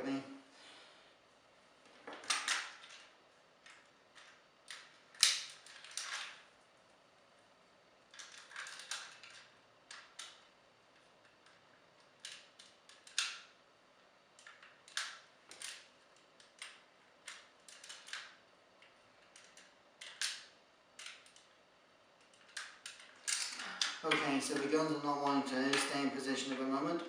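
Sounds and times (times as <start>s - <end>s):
plastic toy parts clicking: 8.1s - 10.4s, 11.4s - 13.5s, 14.4s - 21.5s, 22.2s - 24.0s.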